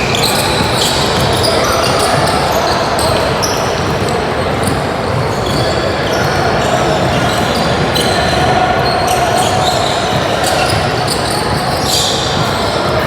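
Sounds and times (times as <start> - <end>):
basketball bouncing on court: 0.0 - 13.0
murmur of voices: 0.0 - 13.0
sneaker squeaks: 0.0 - 13.0.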